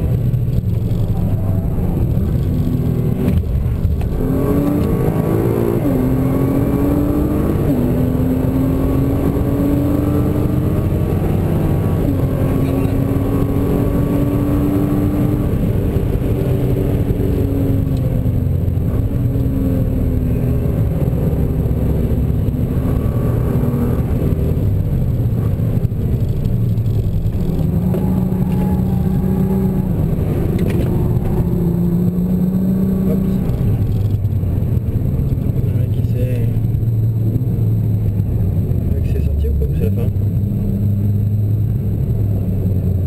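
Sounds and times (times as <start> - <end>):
road and wind noise: 0.0 - 43.0
car engine slowing down: 15.4 - 43.0.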